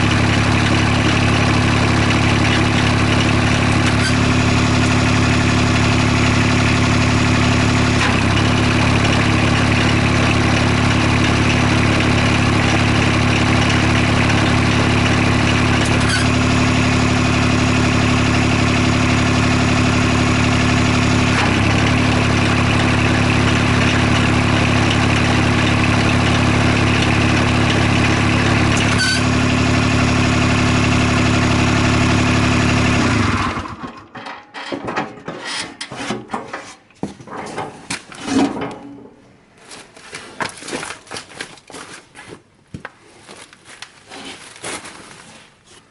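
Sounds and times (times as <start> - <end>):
small diesel engine running: 0.0 - 34.2.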